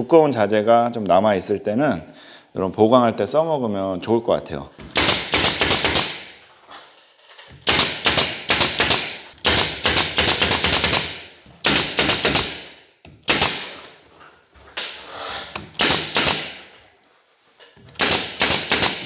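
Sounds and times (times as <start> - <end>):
pneumatic nailer firing: 4.9 - 6.5, 7.6 - 14.0, 14.8 - 16.8, 18.0 - 19.0.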